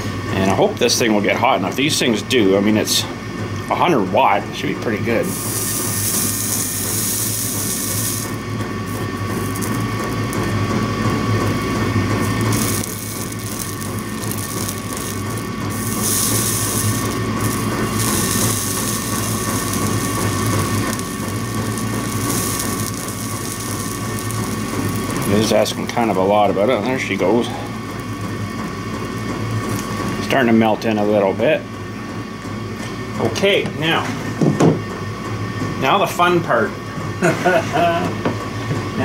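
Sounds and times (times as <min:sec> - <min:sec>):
soldering tool humming and hissing: 0:04.9 - 0:31.3.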